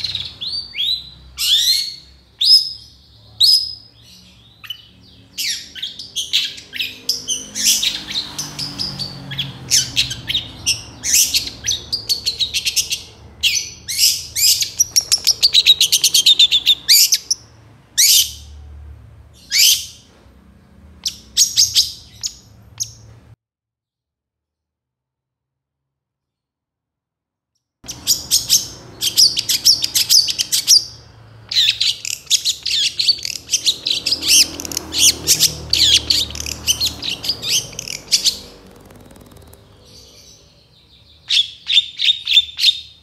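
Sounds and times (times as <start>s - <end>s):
shrike chattering song: 9.7s - 17.4s, 27.9s - 42.5s.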